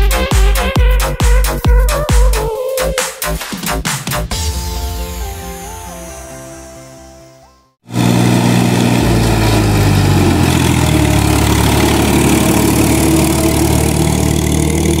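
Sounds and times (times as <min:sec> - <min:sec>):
tractor diesel engine running: 0:07.9 - 0:15.0.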